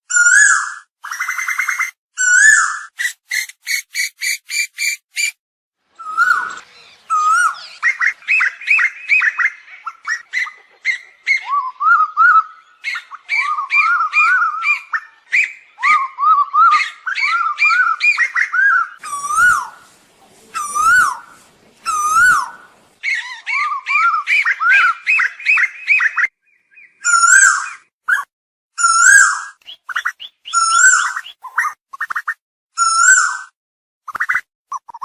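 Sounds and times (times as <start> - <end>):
asian koel calls: 0.1 - 33.5.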